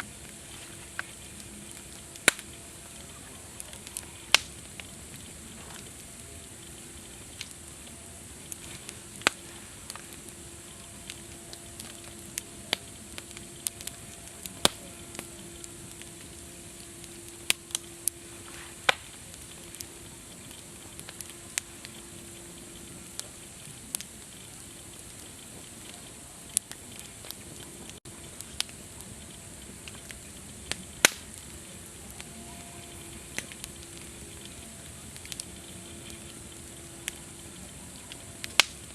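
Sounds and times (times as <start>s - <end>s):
campfire crackling: 0.0s - 38.9s
faint low tone: 32.0s - 38.4s.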